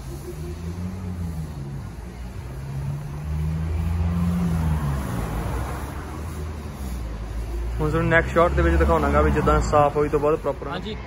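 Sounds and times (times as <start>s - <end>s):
car engine humming at low revs: 0.0s - 10.2s.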